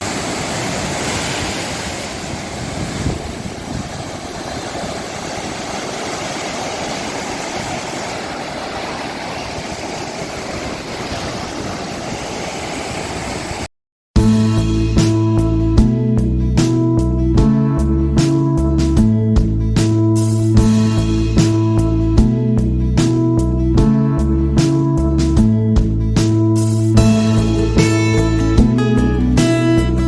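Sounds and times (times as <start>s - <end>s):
sea surf rushing: 0.0s - 13.7s
wind noise on microphone: 0.0s - 13.7s
acoustic guitar music: 26.8s - 30.0s.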